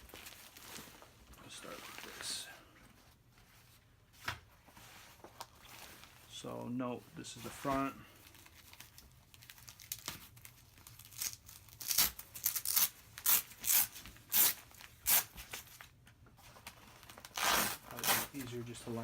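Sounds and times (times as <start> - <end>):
hook-and-loop ripping apart: 8.6 - 15.4, 17.1 - 18.4.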